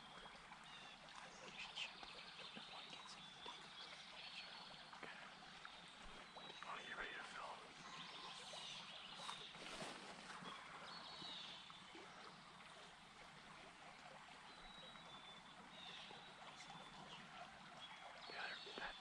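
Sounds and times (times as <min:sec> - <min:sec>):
soft rustles: 0:09.2 - 0:10.5.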